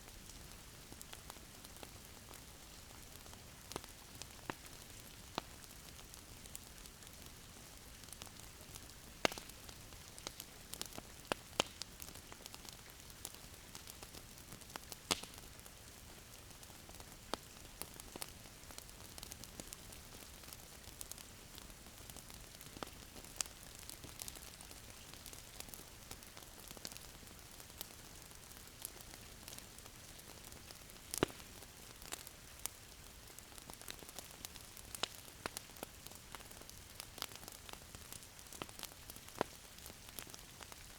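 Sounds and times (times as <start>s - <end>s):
wood fire crackling: 0.1s - 40.9s.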